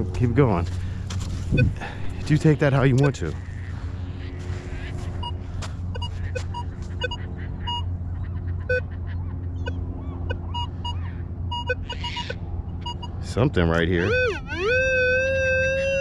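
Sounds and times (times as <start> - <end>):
steady low hum: 0.0 - 16.0
metal detector beeps: 1.5 - 3.3, 6.0 - 7.8, 8.7 - 8.9, 10.3 - 13.2.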